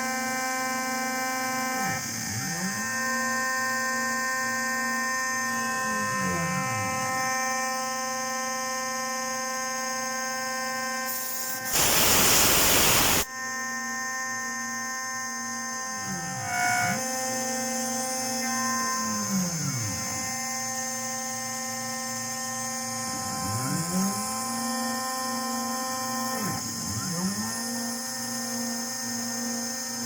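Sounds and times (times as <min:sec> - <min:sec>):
milling machine whine and hum: 0:11.2 - 0:13.3
loud hissing: 0:11.8 - 0:13.3.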